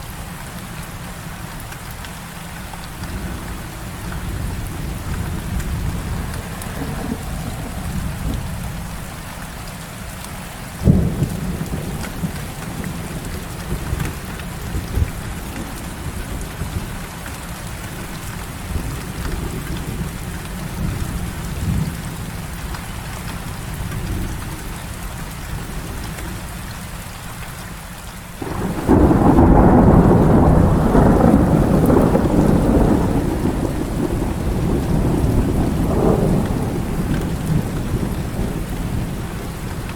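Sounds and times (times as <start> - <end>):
heavy rain: 0.0 - 39.9
thunder rumbling: 2.8 - 9.6, 10.8 - 17.0, 28.4 - 39.9
sharp thunder crack: 28.4 - 39.9.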